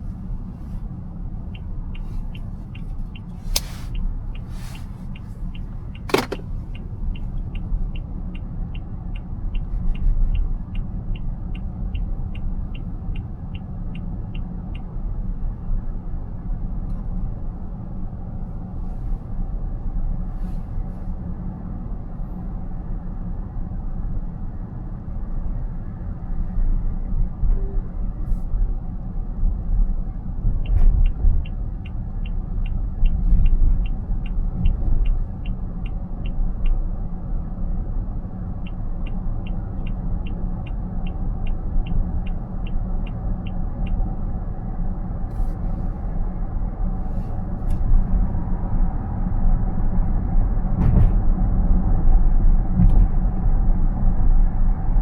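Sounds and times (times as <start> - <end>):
turn signal ticking: 0.0 - 16.5, 29.5 - 45.3
car cabin road rumble: 0.0 - 55.0.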